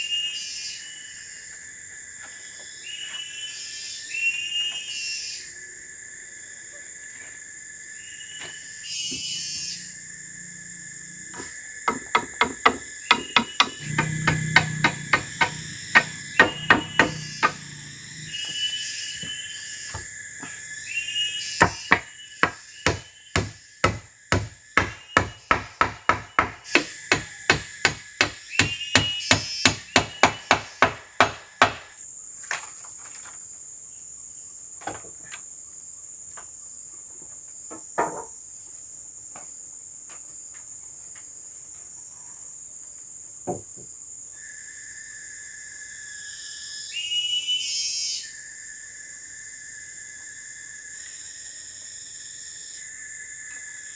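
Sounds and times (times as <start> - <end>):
forest insects droning: 0.0 - 53.9
scattered knocks: 11.9 - 17.9
rapid blows on wood: 12.1 - 18.3.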